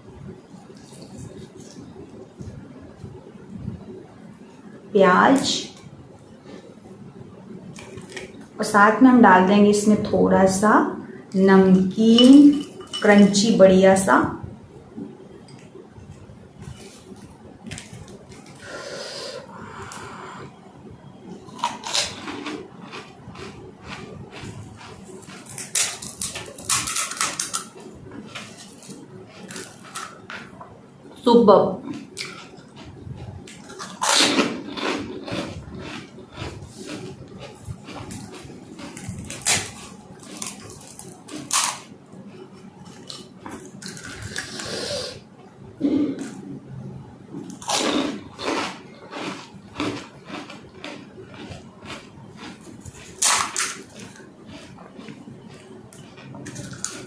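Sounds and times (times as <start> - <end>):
crisp shells crunching being chewed: 7.7 - 8.5, 21.4 - 30.6, 31.9 - 44.8, 47.4 - 57.0.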